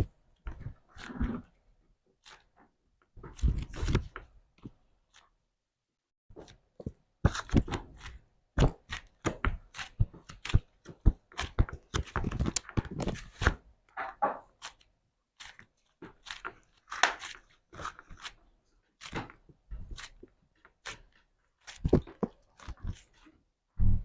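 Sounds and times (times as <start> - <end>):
slime crunching and popping: 7.3 - 13.5, 14.5 - 18.4.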